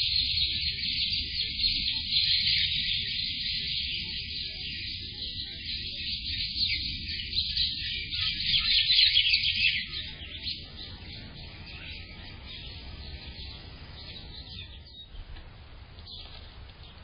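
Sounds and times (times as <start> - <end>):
small birds chirping: 0.0 - 17.0
low steady rumble: 10.1 - 17.0.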